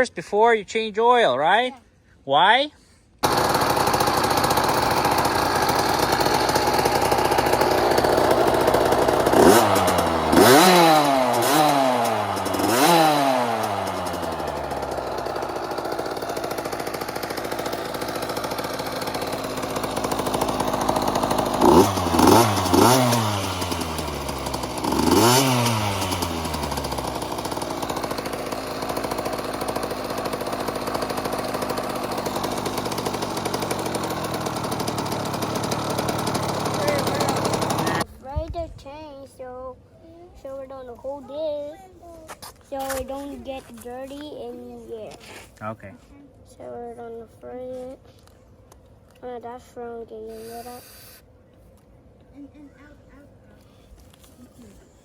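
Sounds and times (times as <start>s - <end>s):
dirt bike engine idling and revving: 3.2s - 38.5s.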